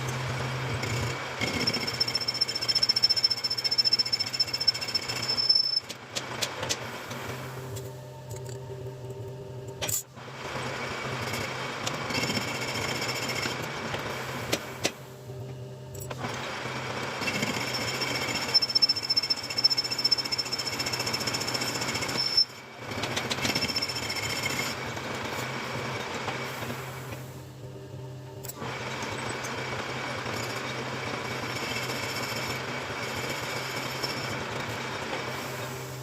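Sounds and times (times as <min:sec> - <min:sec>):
lathe motor hum: 0:00.0 - 0:07.8.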